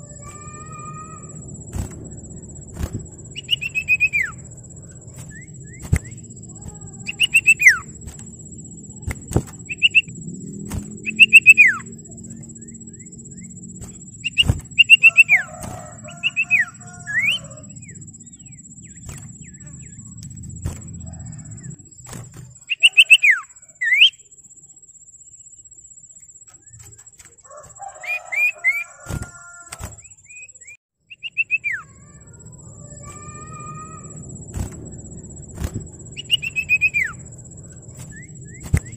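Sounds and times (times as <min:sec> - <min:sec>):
bird whistled calls: 0:02.8 - 0:04.5, 0:05.1 - 0:08.0, 0:09.0 - 0:10.1, 0:11.0 - 0:12.0, 0:12.6 - 0:20.1, 0:22.6 - 0:24.2, 0:30.0 - 0:32.2, 0:35.6 - 0:37.3, 0:38.0 - 0:38.9.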